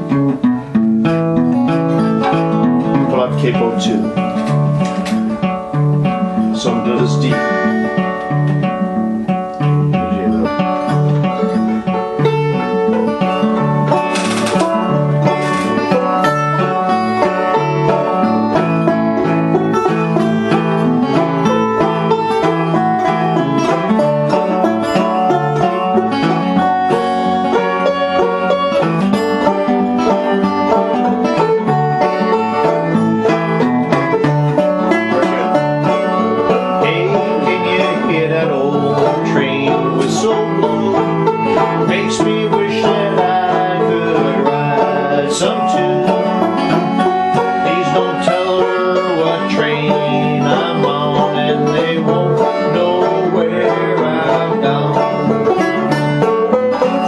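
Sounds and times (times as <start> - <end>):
fingerpicked acoustic guitar: 0.0 - 57.0.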